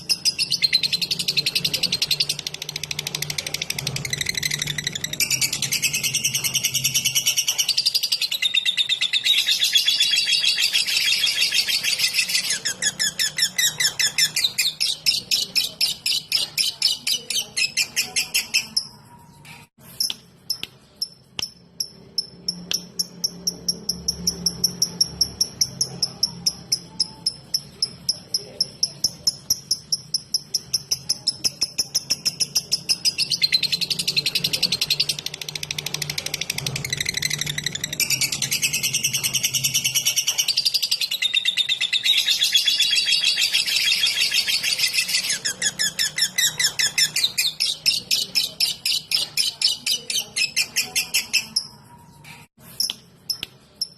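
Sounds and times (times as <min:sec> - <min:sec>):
lovebird ticking chirps: 0:20.0 - 0:51.7.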